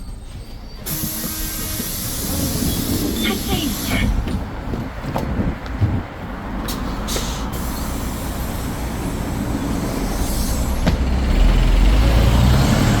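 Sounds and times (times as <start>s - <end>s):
bus engine rumbling: 0.0s - 13.0s
compressed air hiss: 0.8s - 4.3s, 6.8s - 10.9s.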